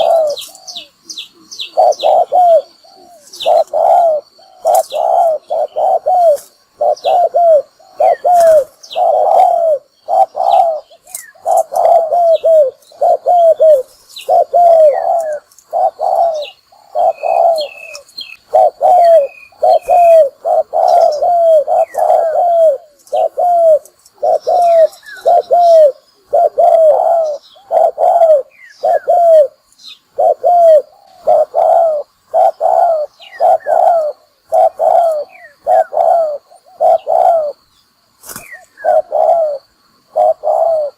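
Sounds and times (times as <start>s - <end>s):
dove cooing: 0.0s - 37.7s, 38.3s - 40.9s
small birds chirping: 0.0s - 40.9s.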